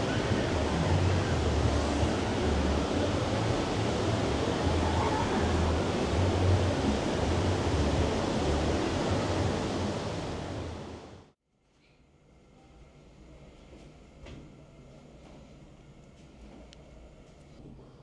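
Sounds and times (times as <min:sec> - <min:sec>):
rushing water with deep rumble: 0:00.0 - 0:11.4.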